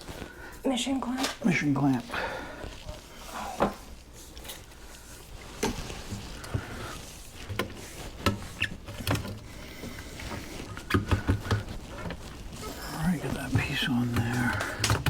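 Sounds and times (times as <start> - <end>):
pipe fittings clicking and knocking: 10.6 - 12.3, 14.1 - 15.0.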